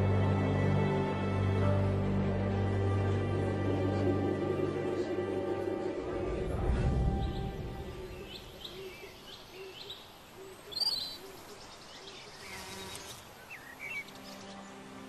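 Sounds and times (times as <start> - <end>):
birds chirping: 3.0 - 15.0.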